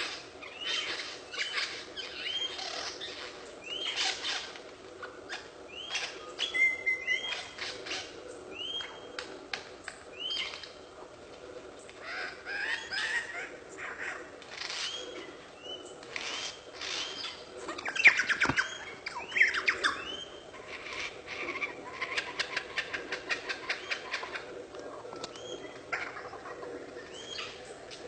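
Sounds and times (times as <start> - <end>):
bird chirping: 12.0 - 24.4.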